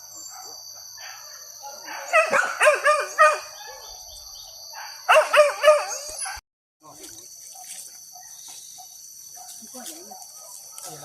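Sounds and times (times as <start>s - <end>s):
dogs yelping barks: 0.2s - 6.4s.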